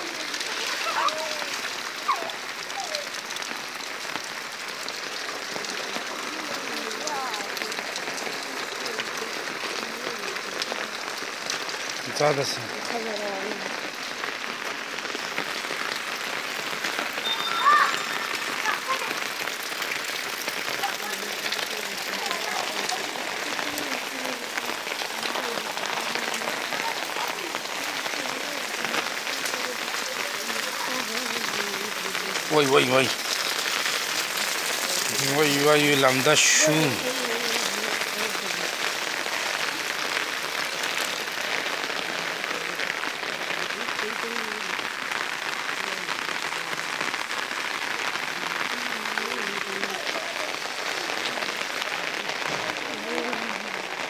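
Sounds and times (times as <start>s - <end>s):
faint voice: 0.0s - 3.2s, 17.2s - 19.3s, 20.7s - 33.1s, 48.4s - 54.0s
heavy rain falling: 0.0s - 54.0s
raindrops pattering close by: 0.0s - 54.0s.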